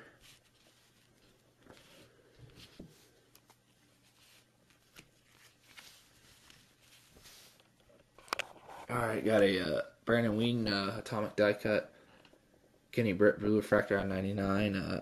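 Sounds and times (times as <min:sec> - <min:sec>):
trading cards rustling: 0:00.0 - 0:09.4.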